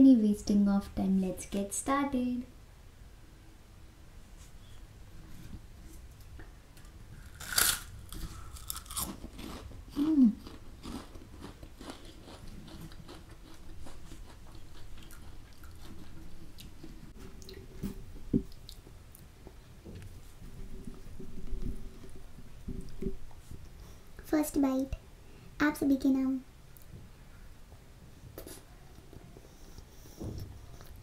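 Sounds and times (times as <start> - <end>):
crunching bite: 7.2 - 14.0
crunchy chewing: 7.2 - 17.6.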